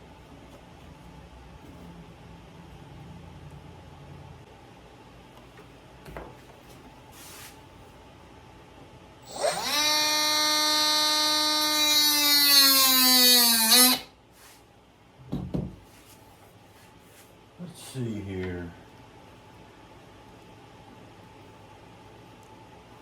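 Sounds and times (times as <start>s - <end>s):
small electric power tool motor: 9.2s - 14.1s.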